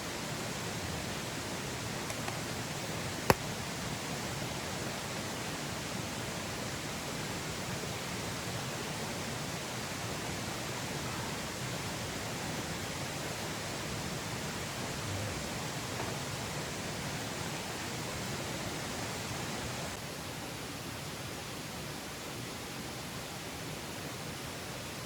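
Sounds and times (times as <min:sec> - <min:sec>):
water rushing: 0:00.0 - 0:20.0.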